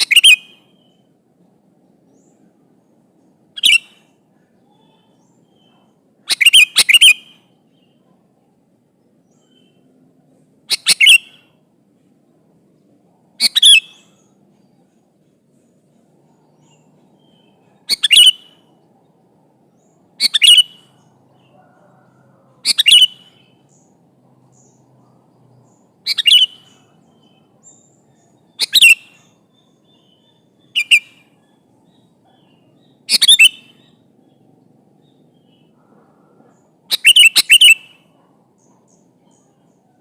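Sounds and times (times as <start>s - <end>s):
bird chirping calls: 0.0s - 40.0s.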